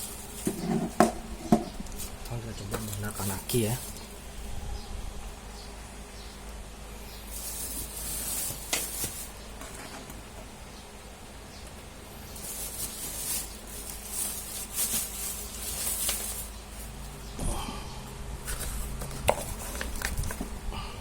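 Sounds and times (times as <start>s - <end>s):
rustling hiss: 0.0s - 10.0s, 11.4s - 21.0s
low electrical hum: 0.0s - 21.0s.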